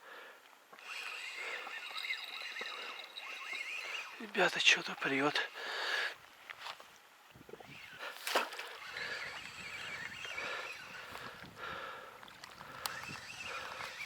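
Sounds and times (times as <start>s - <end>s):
water sloshing and splashing: 6.4s - 14.0s
sharp clicks: 12.6s - 14.0s.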